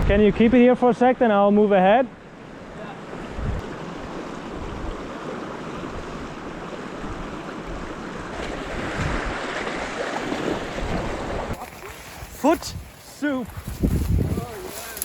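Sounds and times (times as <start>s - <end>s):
wind buffeting microphone: 0.0s - 0.7s, 3.2s - 5.2s, 5.8s - 9.8s, 10.4s - 15.0s
brook water rushing: 1.6s - 15.0s.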